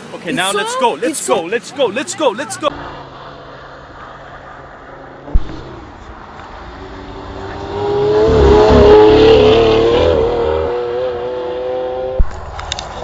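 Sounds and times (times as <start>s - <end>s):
car engine revving high: 2.2s - 12.2s.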